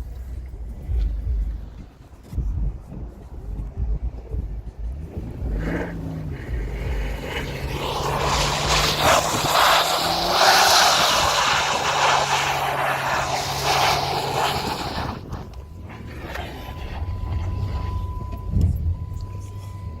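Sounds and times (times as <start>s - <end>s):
car engine under power: 4.7s - 20.0s
tyres spinning in snow: 5.0s - 18.2s.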